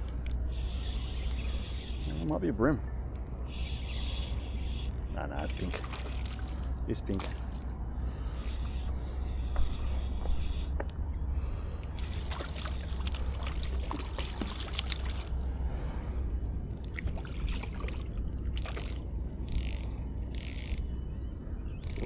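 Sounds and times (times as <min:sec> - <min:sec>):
steady low rumble: 0:00.0 - 0:21.8
water splashing and trickling: 0:05.2 - 0:07.8, 0:12.0 - 0:15.7, 0:16.8 - 0:19.6.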